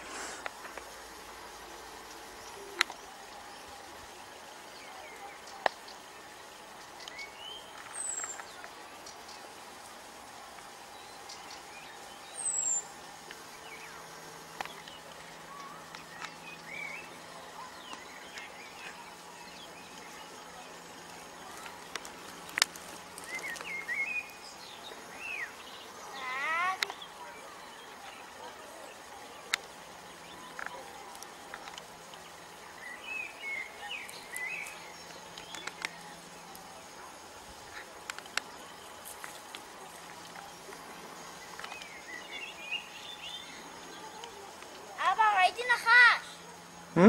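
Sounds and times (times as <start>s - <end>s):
faint low hum: 0.0s - 47.0s
bird chirps and trills: 10.9s - 20.5s.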